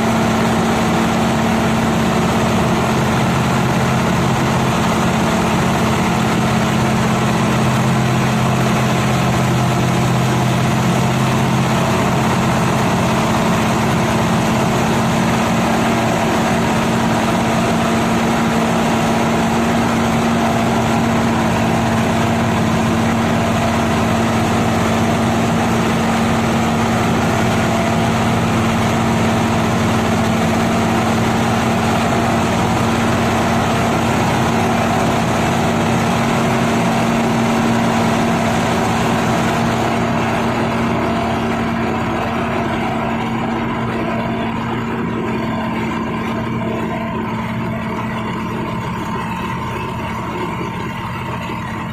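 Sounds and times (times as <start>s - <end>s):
dump truck diesel engine running: 0.0s - 51.9s.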